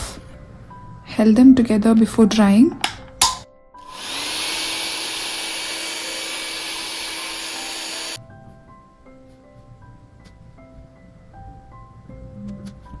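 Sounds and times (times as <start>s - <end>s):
soft background music: 0.0s - 13.0s
hot-air dryer blowing: 3.2s - 8.2s.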